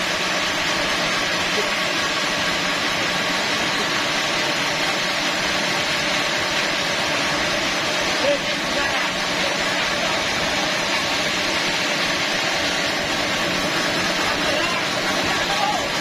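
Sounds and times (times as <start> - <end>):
sawmill machinery hissing: 0.0 - 16.0.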